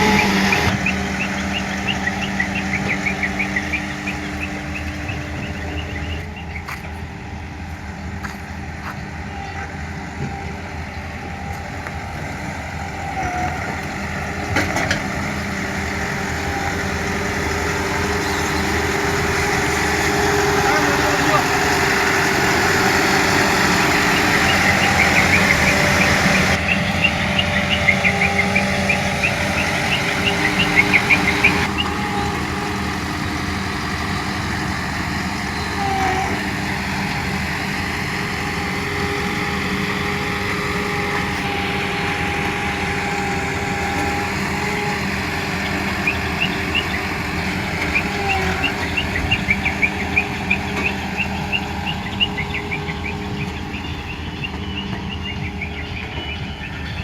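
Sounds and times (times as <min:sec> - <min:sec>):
road roller diesel engine running: 0:00.0 - 0:57.0
rapid high chirping: 0:17.5 - 0:32.0.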